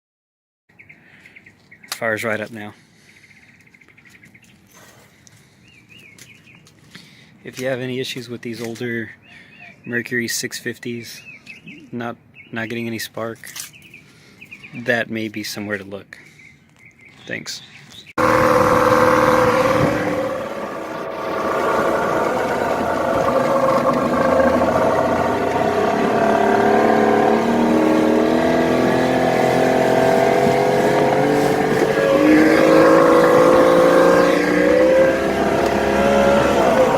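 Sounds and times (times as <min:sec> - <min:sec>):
outboard engine running: 0:18.2 - 0:36.9.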